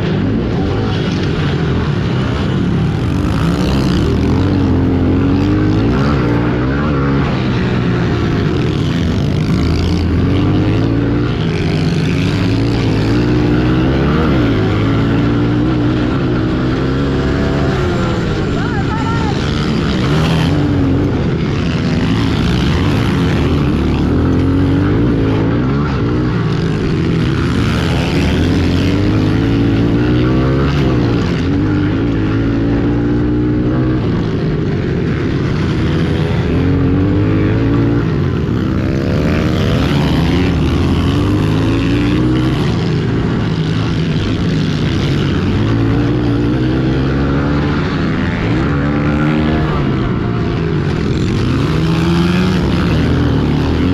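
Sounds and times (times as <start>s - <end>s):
pit bike engines revving: 0.0s - 53.9s.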